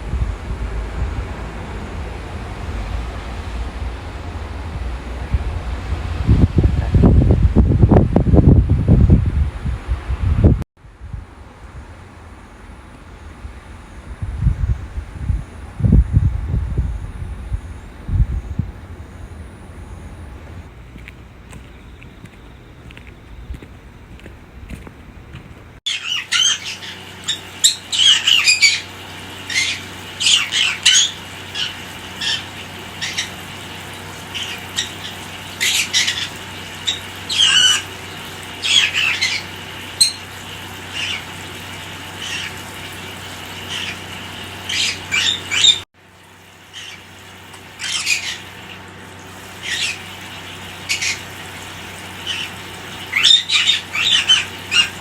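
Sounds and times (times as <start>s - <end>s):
steady low hum: 0.0s - 45.2s
parrots squawking: 25.9s - 45.8s, 46.7s - 47.1s, 47.8s - 48.7s, 49.5s - 55.0s.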